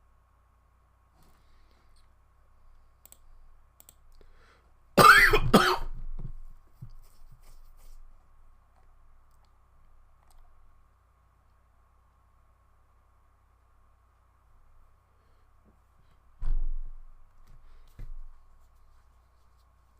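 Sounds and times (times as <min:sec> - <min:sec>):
person coughing: 0:05.0 - 0:06.0.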